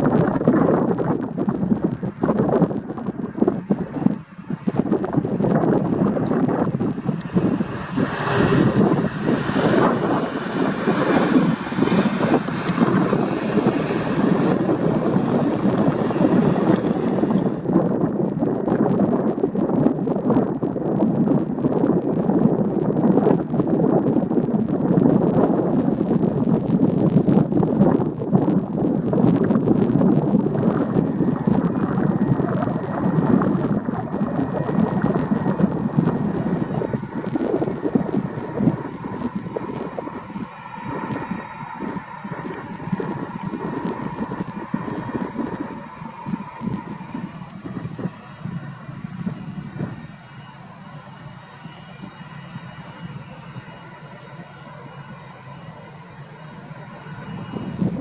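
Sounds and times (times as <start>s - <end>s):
jet airliner engine rushing: 0.0s - 58.0s
wind buffeting microphone: 0.0s - 58.0s.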